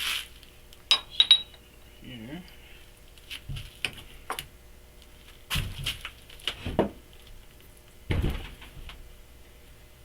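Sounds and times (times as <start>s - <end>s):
metal parts knocking and clinking: 0.9s - 1.6s.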